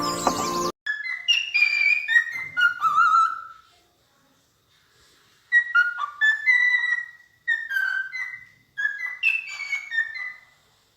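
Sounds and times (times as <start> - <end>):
songbird whistling: 0.9 - 3.6, 5.5 - 10.6.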